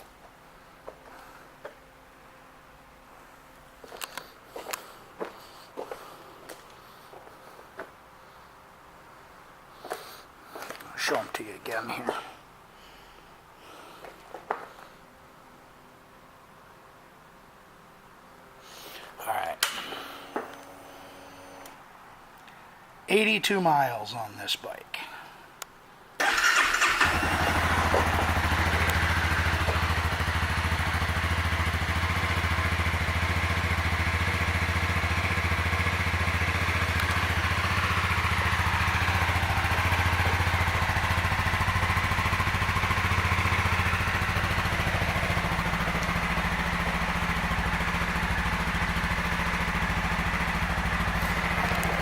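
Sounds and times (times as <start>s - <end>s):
motorcycle engine idling: 26.2s - 52.0s.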